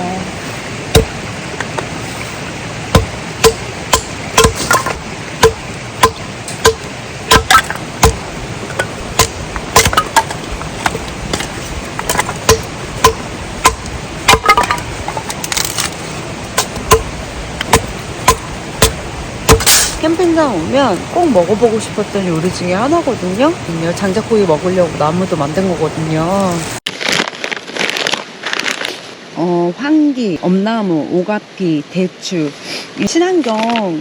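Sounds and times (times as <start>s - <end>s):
axe chopping wood: 0.9s - 1.2s, 2.9s - 15.9s, 16.5s - 20.0s.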